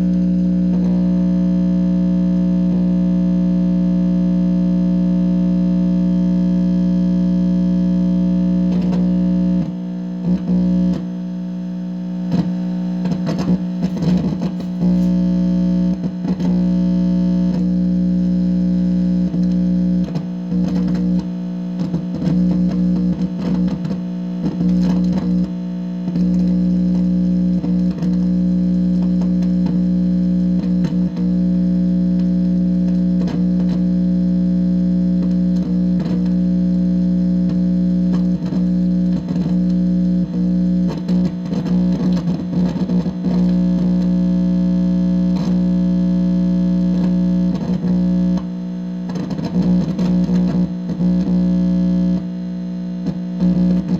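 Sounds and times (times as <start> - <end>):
amplifier speaker buzz: 0.0 - 53.9.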